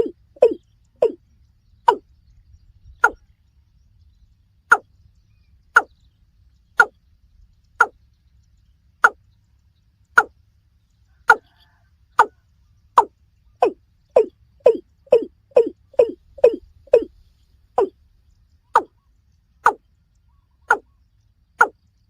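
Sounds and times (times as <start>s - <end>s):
watercock calling: 0.0s - 1.2s, 18.7s - 19.0s, 20.6s - 20.9s.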